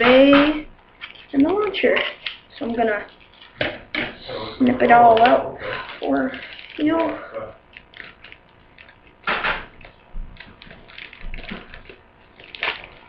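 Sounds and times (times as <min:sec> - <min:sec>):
plastic crinkling: 0:00.0 - 0:03.7, 0:04.8 - 0:13.0
loud plastic crackle: 0:05.6 - 0:13.0
scissors snipping plastic: 0:06.4 - 0:13.0.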